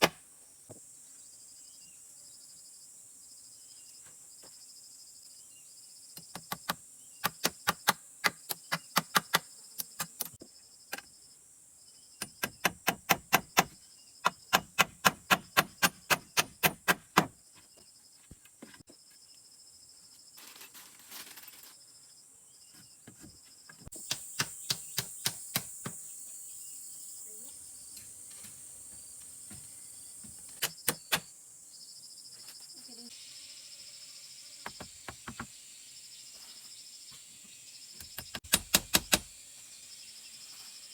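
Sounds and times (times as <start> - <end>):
crickets and insects droning: 0.1 - 40.9
rapid sharp knocks on wood: 6.2 - 10.2, 12.2 - 17.4, 38.2 - 39.3.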